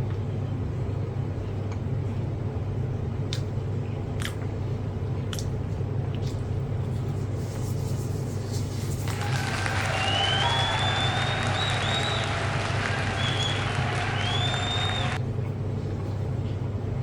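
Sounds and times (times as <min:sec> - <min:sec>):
wet eating clicks and smacks: 0:04.2 - 0:04.5, 0:05.3 - 0:06.5.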